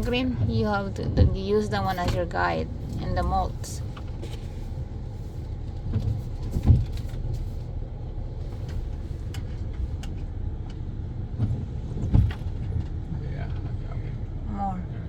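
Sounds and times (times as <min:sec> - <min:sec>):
truck engine running low speed: 0:00.0 - 0:15.0.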